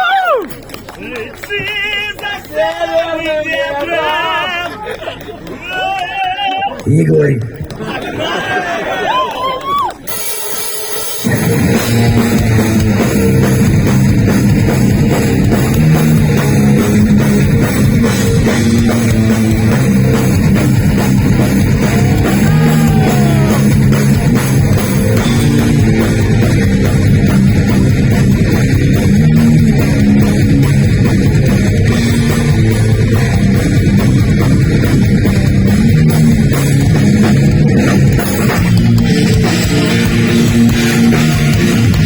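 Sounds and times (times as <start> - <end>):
drum kit: 10.0 - 42.0
distorted electric guitars: 10.1 - 42.0
heavy metal band playing: 10.1 - 42.0.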